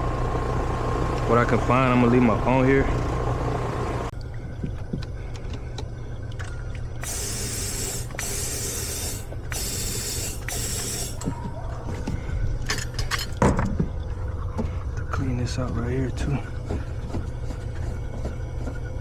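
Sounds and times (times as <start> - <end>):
steady low hum: 0.0 - 19.0
pressurised gas hissing: 7.0 - 11.3.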